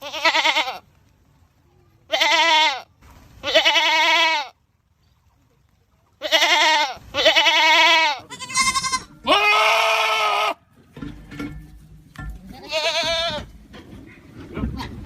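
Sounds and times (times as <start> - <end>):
goat bleating: 0.0 - 0.9, 2.1 - 4.6, 6.2 - 10.7, 12.5 - 15.0.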